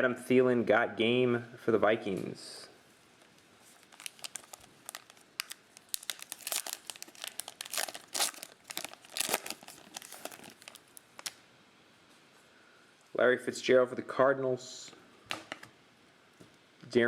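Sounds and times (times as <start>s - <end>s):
foil wrapper crinkling and tearing: 3.2s - 11.4s.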